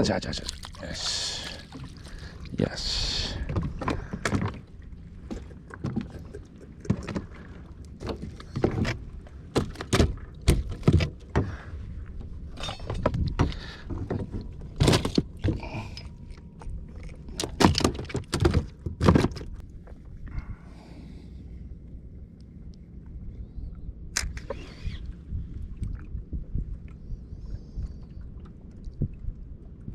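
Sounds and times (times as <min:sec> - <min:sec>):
fishing gear knocking and rattling: 0:12.5 - 0:16.0, 0:17.3 - 0:19.6.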